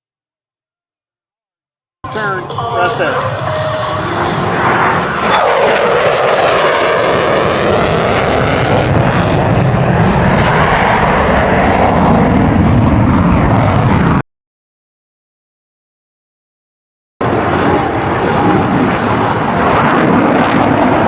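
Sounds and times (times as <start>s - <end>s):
airplane flying past: 2.1s - 14.2s, 17.2s - 21.0s.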